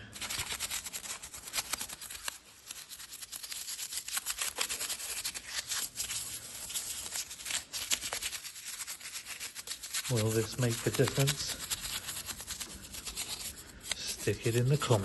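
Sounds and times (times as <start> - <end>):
stiff brush scrubbing: 0.0 - 15.0.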